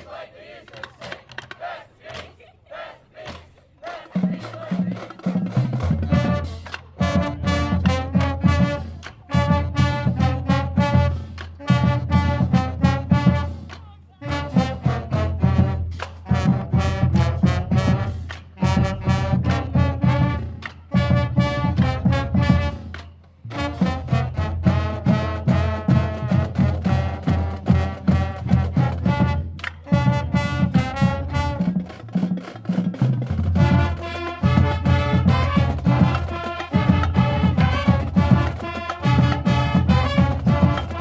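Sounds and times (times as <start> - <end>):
drums: 0.0 - 2.5, 3.1 - 41.0
band playing upbeat tune: 3.9 - 41.0
brass punches: 33.6 - 41.0.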